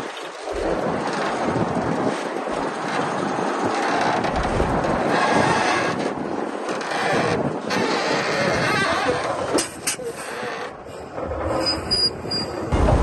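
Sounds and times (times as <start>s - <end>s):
steel tracks clanking: 9.6s - 13.0s.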